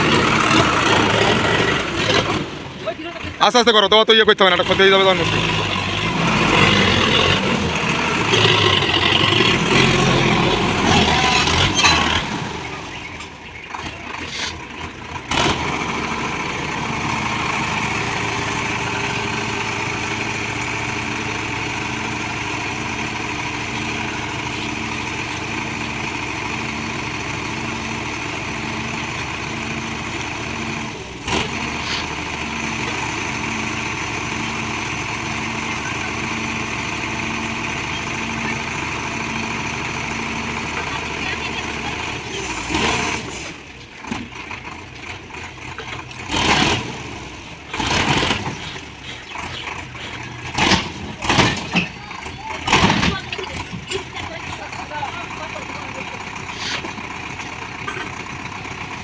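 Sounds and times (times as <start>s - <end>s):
diesel engine of heavy machinery: 0.0s - 59.0s.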